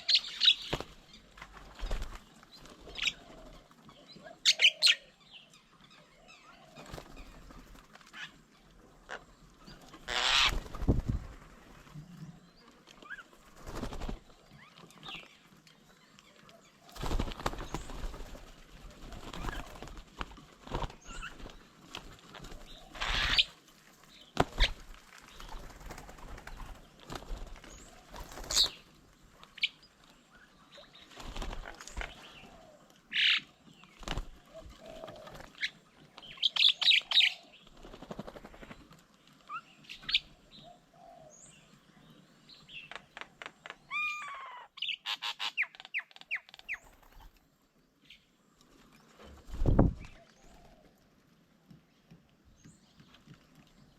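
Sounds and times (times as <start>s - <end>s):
bird wings flapping: 0.3s - 3.5s, 6.7s - 8.3s, 9.8s - 12.1s, 13.1s - 14.4s, 16.9s - 23.5s, 24.4s - 28.9s, 31.1s - 32.3s, 34.0s - 36.3s, 37.0s - 39.1s, 49.2s - 50.8s.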